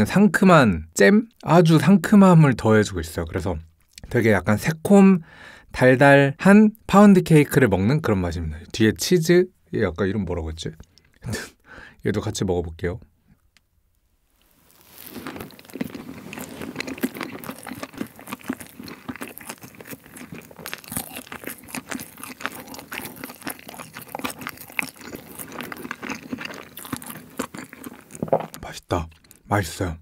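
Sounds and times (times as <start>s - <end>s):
chewing cake: 14.8s - 29.5s.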